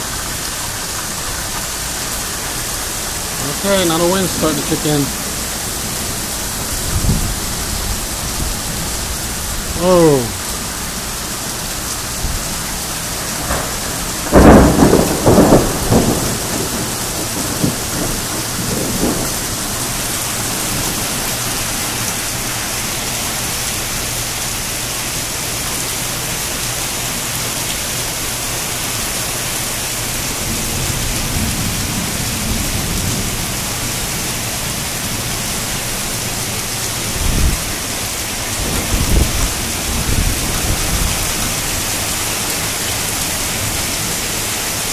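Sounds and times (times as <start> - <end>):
heavy rain: 0.0 - 44.9
thunder rumbling: 2.5 - 10.8, 12.1 - 22.0, 36.9 - 42.7.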